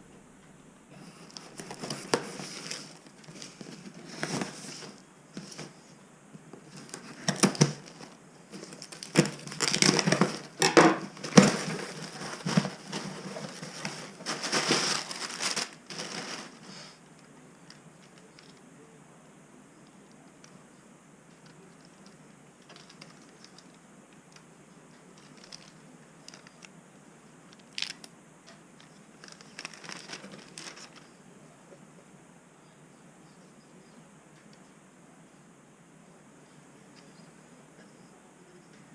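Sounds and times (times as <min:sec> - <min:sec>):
package being unwrapped: 0:06.8 - 0:16.8, 0:27.6 - 0:28.1, 0:29.2 - 0:31.1.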